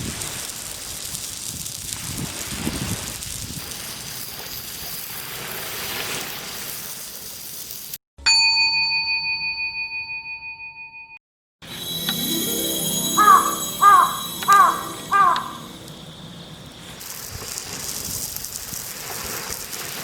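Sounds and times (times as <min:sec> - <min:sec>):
bell-like ding: 0:08.3 - 0:16.4.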